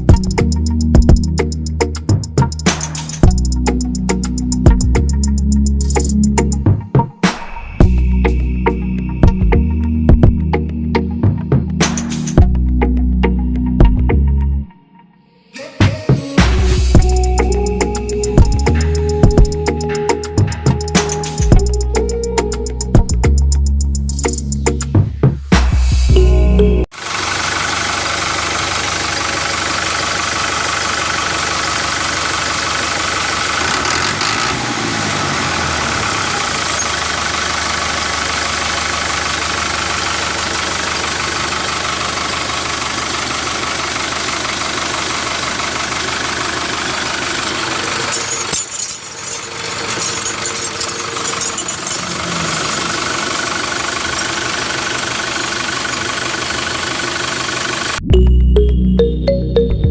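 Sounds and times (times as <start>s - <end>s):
small motor running: 49.5s - 58.0s.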